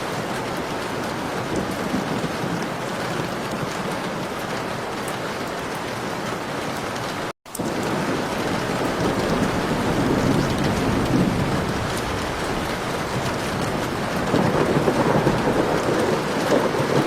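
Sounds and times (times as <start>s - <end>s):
heavy rain pouring: 0.0s - 17.0s
low thunder rumble: 7.6s - 17.0s.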